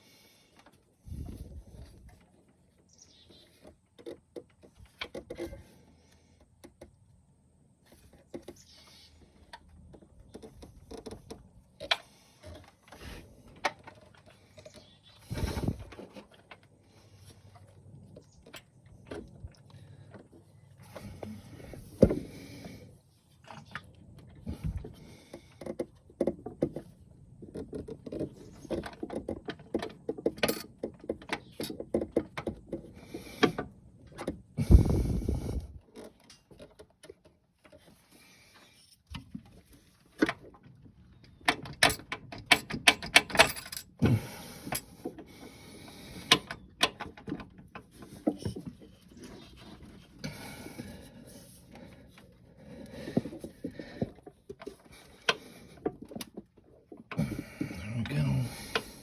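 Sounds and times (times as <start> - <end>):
tools and metal parts clinking: 41.5 - 44.0.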